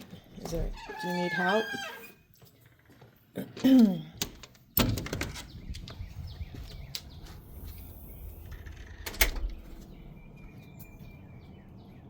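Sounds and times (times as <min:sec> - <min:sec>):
low wind rumble: 0:04.8 - 0:12.0
bird chirps: 0:05.3 - 0:08.7, 0:09.6 - 0:12.0.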